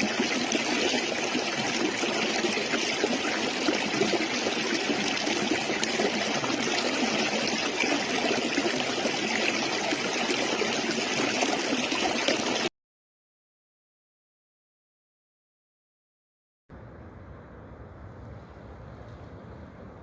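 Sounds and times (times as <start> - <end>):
stream flowing over stones: 0.0 - 12.7.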